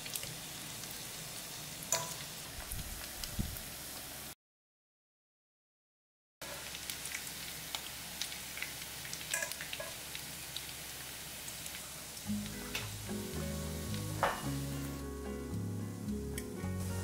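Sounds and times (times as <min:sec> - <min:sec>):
oil crackling and popping: 0:00.0 - 0:01.1, 0:06.4 - 0:13.2
food sizzling in hot oil: 0:00.0 - 0:04.4, 0:06.4 - 0:17.0.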